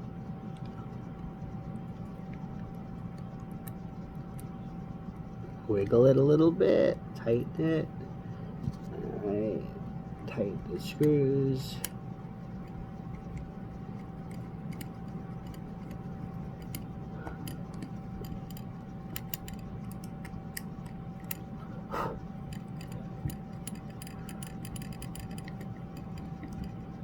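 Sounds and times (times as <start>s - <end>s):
faint hum: 0.0s - 27.0s
metal clicks and scrapes of screws: 11.8s - 21.6s, 22.4s - 27.0s.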